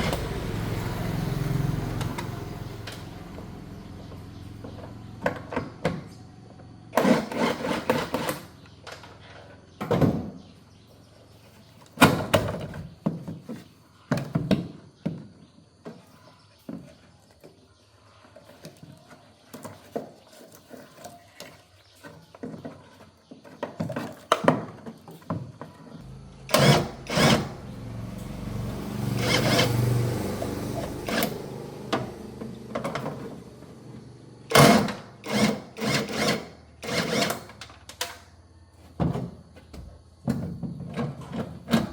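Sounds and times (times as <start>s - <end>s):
tools and car parts clattering: 18.4s - 30.0s, 30.8s - 41.9s
low steady hum: 26.0s - 34.4s.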